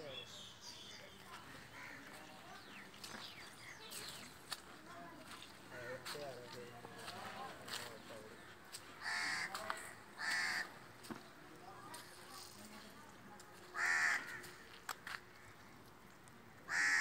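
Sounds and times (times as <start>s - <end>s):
bird calling harshly: 10.2s - 10.7s.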